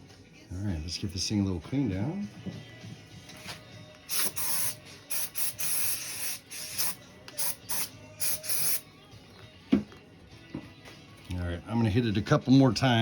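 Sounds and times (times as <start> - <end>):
pressurised spray hissing: 4.0 - 8.8.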